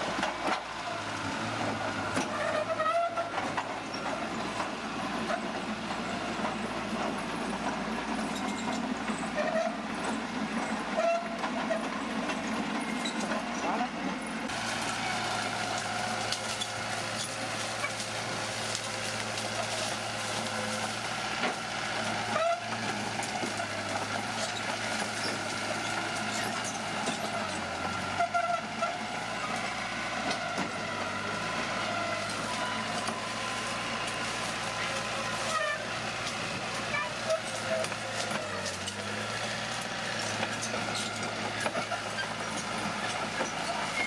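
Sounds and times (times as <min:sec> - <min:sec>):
bulldozer diesel engine running: 0:00.0 - 0:44.0
short squeaks: 0:02.0 - 0:04.6, 0:36.8 - 0:44.0.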